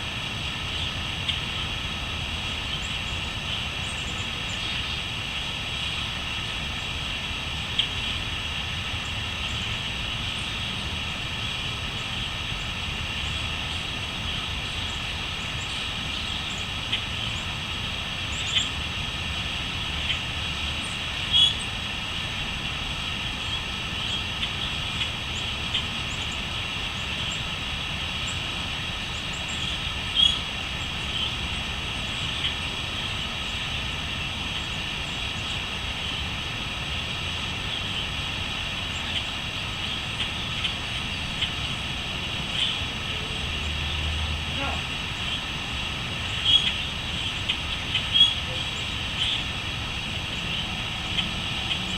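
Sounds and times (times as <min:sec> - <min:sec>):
crickets chirping: 0:00.2 - 0:51.9
short bird calls: 0:21.3 - 0:21.7, 0:29.3 - 0:30.5, 0:46.4 - 0:49.5.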